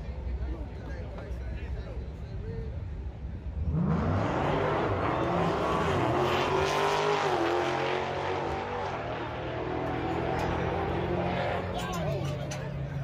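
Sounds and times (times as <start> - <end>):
race car engine accelerating: 3.6 - 11.8.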